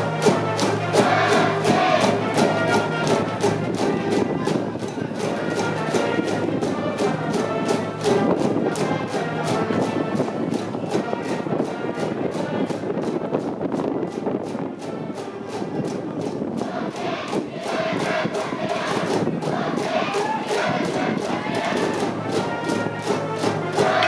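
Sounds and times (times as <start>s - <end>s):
brass band playing: 0.0s - 4.4s, 5.2s - 12.4s, 17.0s - 24.0s.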